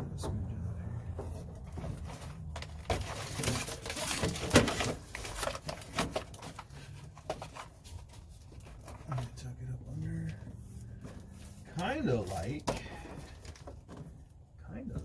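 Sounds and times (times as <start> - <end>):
material rustling and crinkling: 1.2 - 14.4.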